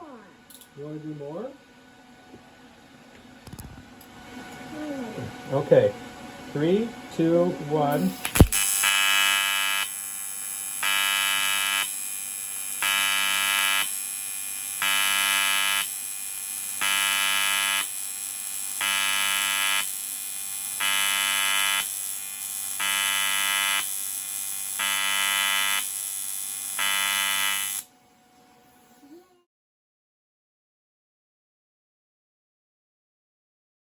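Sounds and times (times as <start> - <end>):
welding arc buzzing: 7.9 - 27.9.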